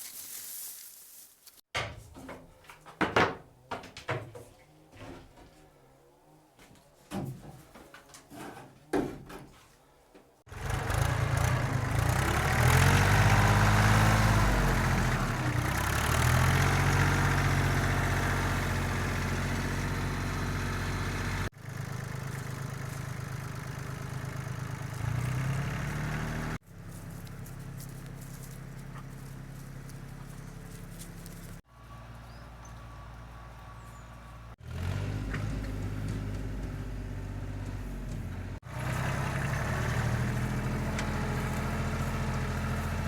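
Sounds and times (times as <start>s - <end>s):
tractor diesel engine revving: 10.5s - 43.0s.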